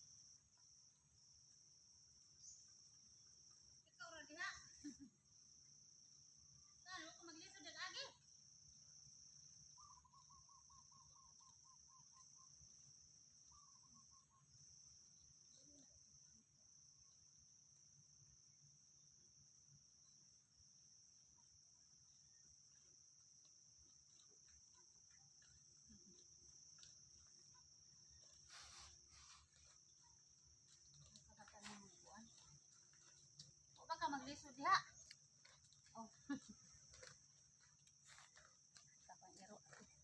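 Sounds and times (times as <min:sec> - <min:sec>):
high-pitched insect trilling: 0:20.8 - 0:40.0.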